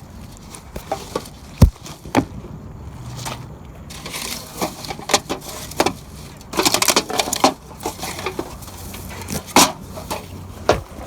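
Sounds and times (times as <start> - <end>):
sharp thump: 1.6 - 1.9
knocks clicks and scrapes: 3.1 - 11.0.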